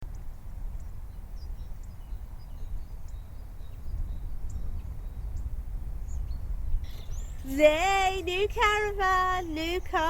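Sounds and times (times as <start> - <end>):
faint bird chirps: 0.8 - 7.6
low outdoor rumble: 3.8 - 10.0.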